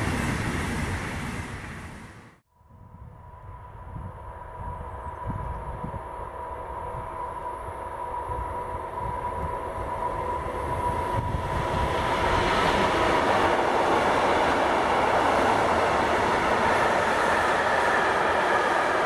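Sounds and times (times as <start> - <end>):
train wheels rushing on rails: 0.0 - 2.4, 8.3 - 19.0.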